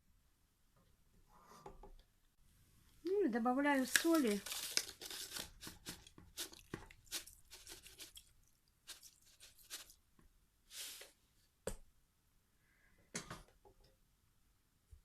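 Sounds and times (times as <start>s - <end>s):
salt rustling and crunching: 3.7s - 10.0s.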